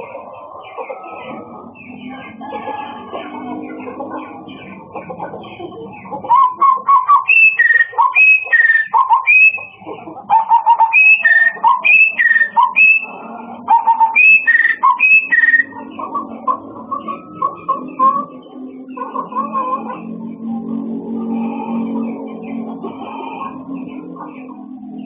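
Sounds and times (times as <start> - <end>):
songbird whistling: 6.3 - 9.8, 10.4 - 13.1, 13.7 - 15.7.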